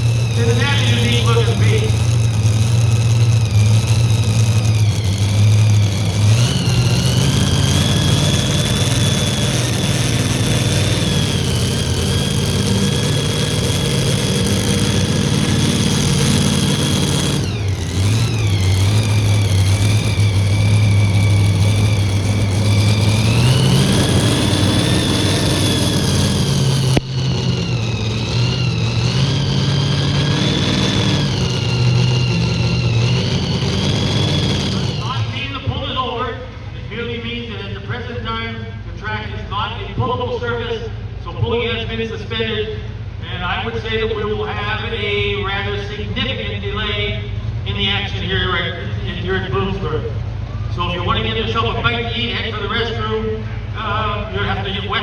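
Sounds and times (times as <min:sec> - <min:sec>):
tractor engine running: 0:00.0 - 0:38.1
high whine: 0:00.0 - 0:38.2.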